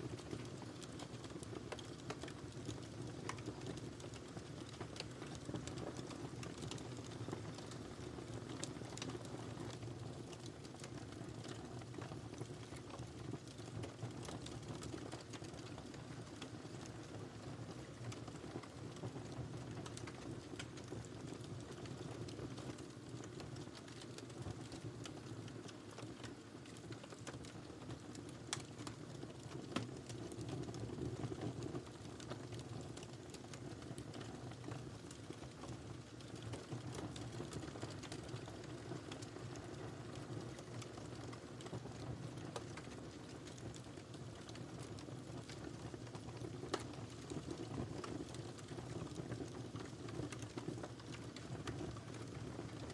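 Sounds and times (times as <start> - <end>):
firewood crackling: 22.8 - 30.2, 36.2 - 52.9.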